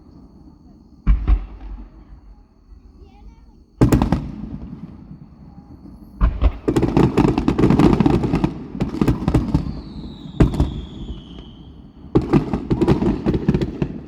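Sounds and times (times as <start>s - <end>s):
fireworks crackling bangs: 0.0s - 14.0s
firework falling whistle: 9.2s - 12.0s.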